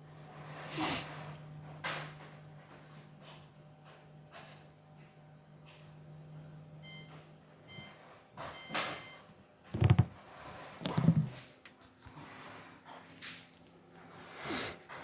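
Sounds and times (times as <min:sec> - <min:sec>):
washing machine beeps: 0:06.8 - 0:09.3
heavy thumps: 0:09.8 - 0:10.2.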